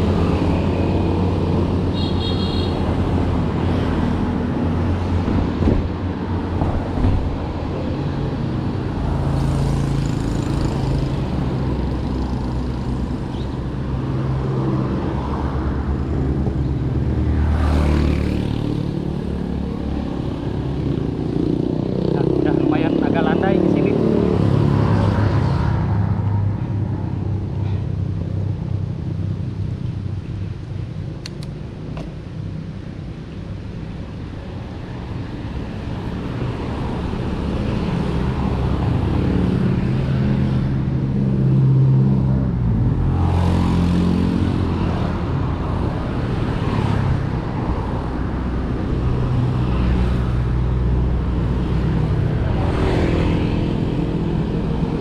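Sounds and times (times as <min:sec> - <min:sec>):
cars passing by: 0:00.0 - 0:55.0.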